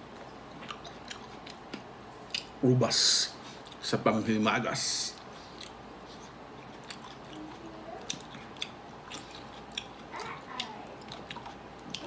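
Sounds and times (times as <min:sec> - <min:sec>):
person chewing grapes: 0:00.0 - 0:02.6, 0:03.4 - 0:03.9, 0:05.1 - 0:12.0.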